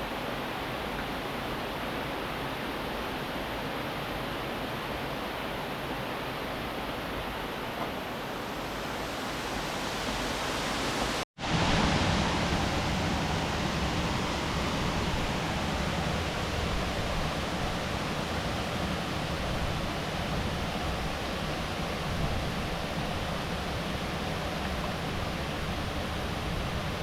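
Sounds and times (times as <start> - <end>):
river water rushing: 0.0 - 27.0.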